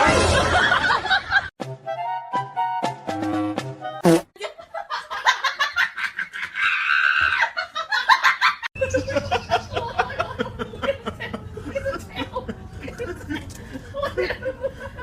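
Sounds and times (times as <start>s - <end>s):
people laughing: 0.1s - 1.5s, 4.4s - 15.0s
background music: 1.6s - 4.2s.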